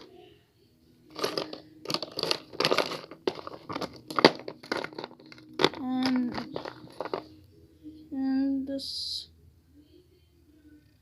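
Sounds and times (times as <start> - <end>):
plastic toys crinkling and clicking: 1.1 - 7.3.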